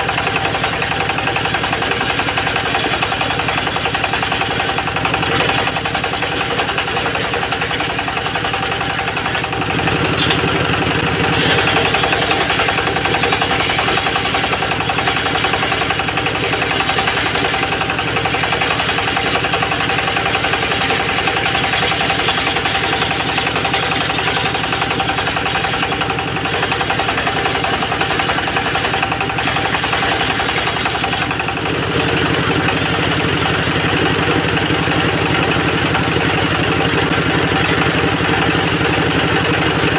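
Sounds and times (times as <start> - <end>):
circular saw whining: 0.0 - 31.5
engine pulsing: 0.0 - 39.9.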